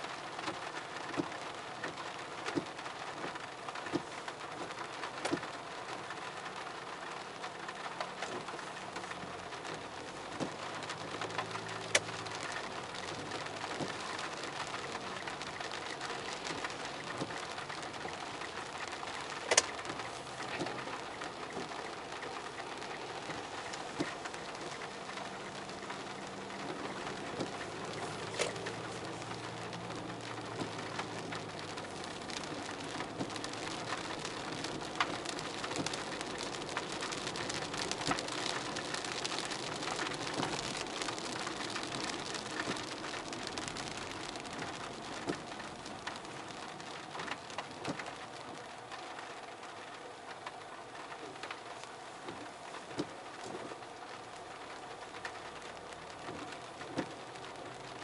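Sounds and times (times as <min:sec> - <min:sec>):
sharp taps of raindrops: 0:00.0 - 0:58.0
steady rain: 0:00.0 - 0:58.0.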